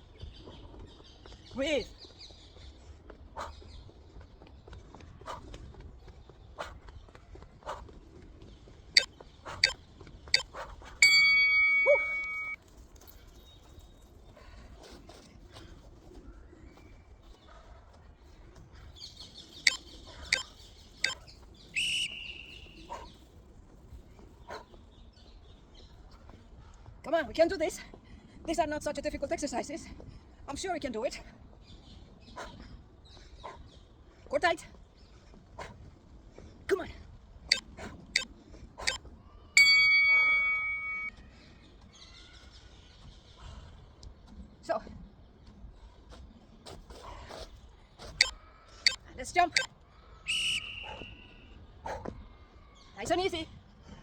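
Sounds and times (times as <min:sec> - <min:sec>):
birds calling: 0:08.6 - 0:12.6, 0:15.6 - 0:26.9, 0:37.5 - 0:41.1, 0:47.9 - 0:53.4
interval timer bell chime: 0:11.0 - 0:12.6, 0:39.6 - 0:41.1
loud high held bird call: 0:11.0 - 0:12.6, 0:21.8 - 0:22.9, 0:39.6 - 0:41.1, 0:50.2 - 0:51.5.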